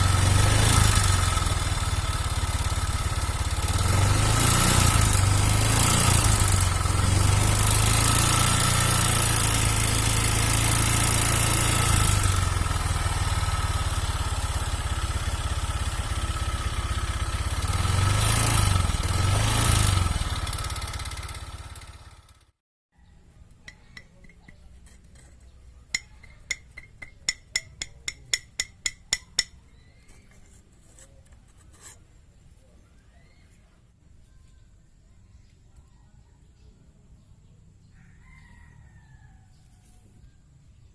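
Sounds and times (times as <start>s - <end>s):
rough scooter engine running: 0.0s - 22.6s, 23.3s - 33.4s.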